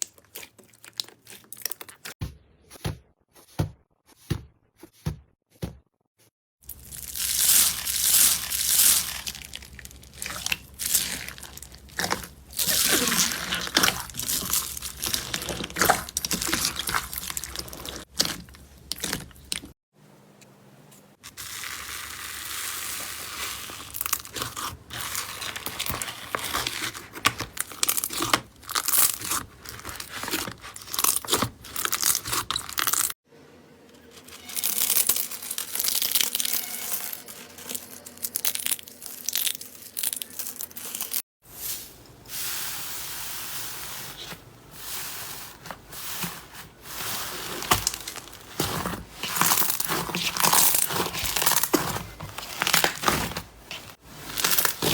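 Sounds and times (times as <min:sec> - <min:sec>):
slime squished by hand: 0:06.7 - 0:19.7.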